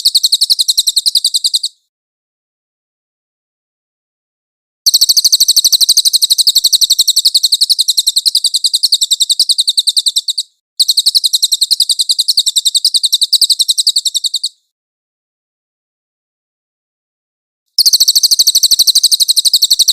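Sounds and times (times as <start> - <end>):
songbird rolling trill: 0.0 - 1.8, 4.9 - 14.6, 17.8 - 19.9.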